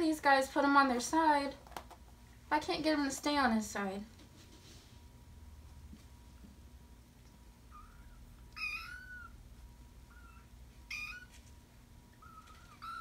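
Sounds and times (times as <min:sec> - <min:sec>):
kitten meowing: 0:07.7 - 0:09.4, 0:10.1 - 0:11.4, 0:12.2 - 0:13.0.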